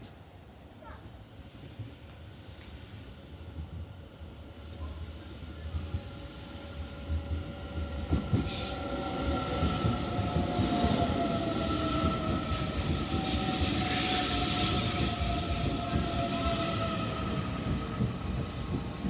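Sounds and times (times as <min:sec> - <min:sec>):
wheels rumbling on rails: 0:04.8 - 0:19.0
train whine dropping in pitch: 0:05.4 - 0:18.8.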